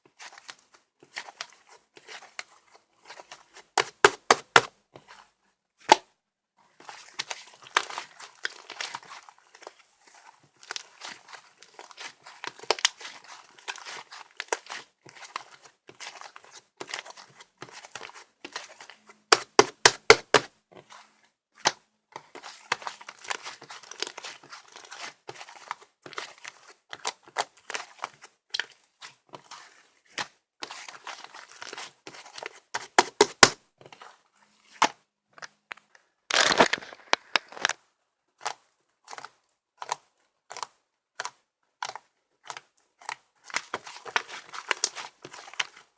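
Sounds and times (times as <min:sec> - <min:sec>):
slime squishing and popping: 0:36.3 - 0:37.7.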